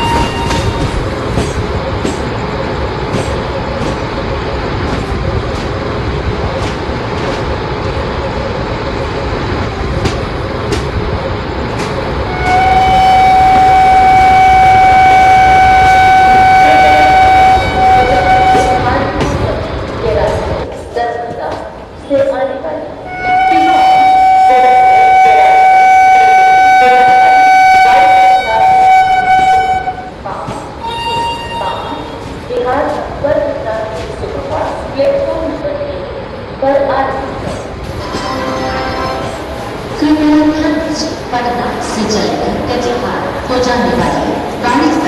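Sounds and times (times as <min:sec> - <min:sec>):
train wheels rumbling on rails: 0:00.0 - 0:45.0
train horn blast: 0:12.3 - 0:19.1, 0:23.1 - 0:30.2, 0:38.0 - 0:39.5.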